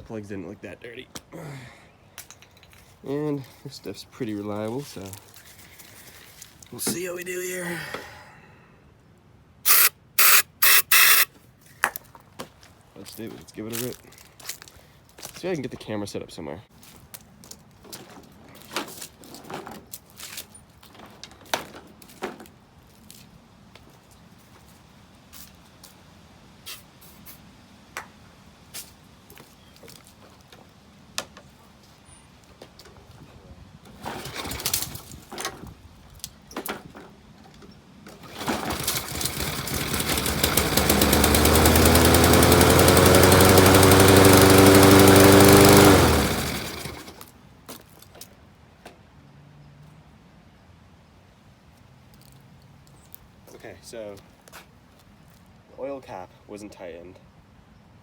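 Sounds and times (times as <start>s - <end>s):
lawn mower engine running: 9.7s - 11.3s, 34.0s - 34.9s, 38.2s - 47.3s
pull-start cord tugs: 9.7s - 11.3s, 33.9s - 35.3s, 38.1s - 47.3s.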